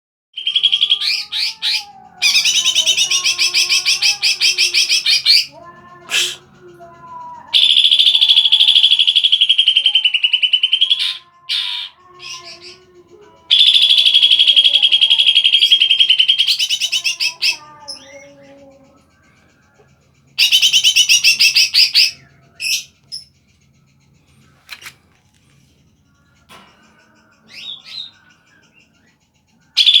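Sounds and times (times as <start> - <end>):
bird chattering song: 0.4 - 24.9, 25.9 - 30.0
bird singing rapid high notes: 7.6 - 12.7.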